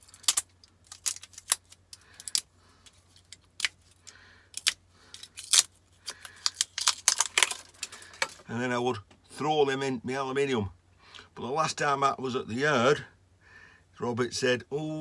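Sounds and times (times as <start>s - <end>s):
metal parts clicking and clinking: 0.0s - 4.0s, 4.6s - 8.5s.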